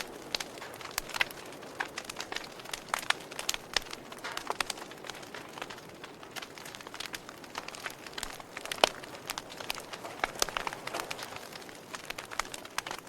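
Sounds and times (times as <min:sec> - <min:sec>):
fire popping: 0:00.0 - 0:13.0
wood fire crackling: 0:00.0 - 0:13.0.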